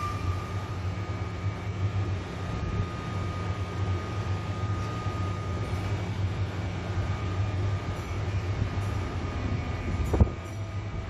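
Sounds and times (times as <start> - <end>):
train rumbling past: 0.0 - 1.8
faint high whine: 0.0 - 11.0.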